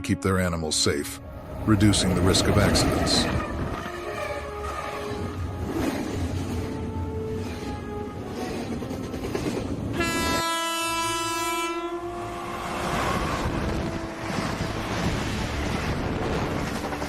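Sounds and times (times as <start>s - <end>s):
train rumbling: 1.0s - 17.0s
train horn blast: 3.1s - 5.8s, 9.9s - 15.8s.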